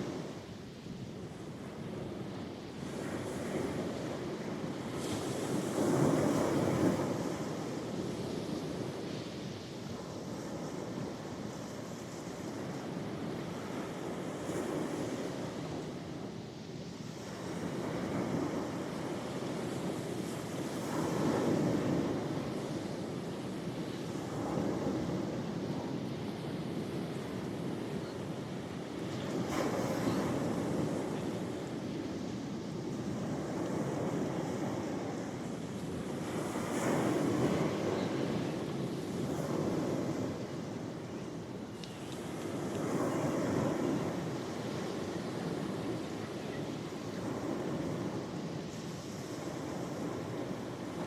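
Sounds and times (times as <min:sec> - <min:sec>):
sea waves breaking on shore: 0:00.0 - 0:51.0.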